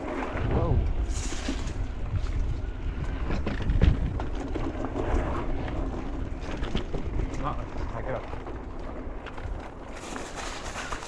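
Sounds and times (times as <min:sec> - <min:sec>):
bike tyres rolling on dirt: 0:00.0 - 0:11.0
wind buffeting microphone: 0:00.0 - 0:11.0
bike rattling and knocking: 0:02.3 - 0:11.0.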